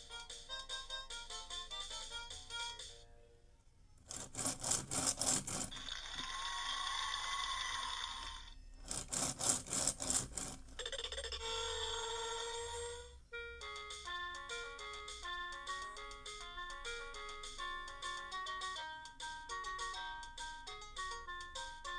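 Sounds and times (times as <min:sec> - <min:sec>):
rapid rasping clicks: 0:04.0 - 0:06.2, 0:08.8 - 0:10.8.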